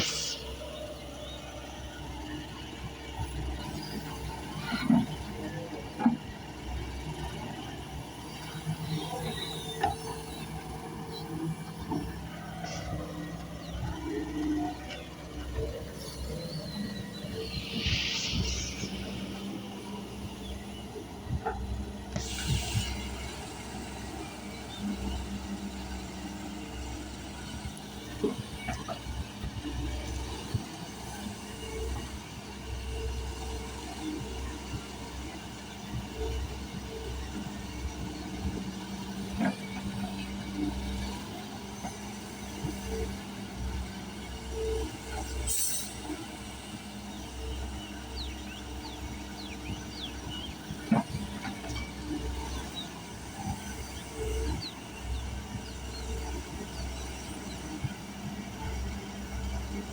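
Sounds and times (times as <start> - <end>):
low mechanical rumble: 10.4 - 25.4.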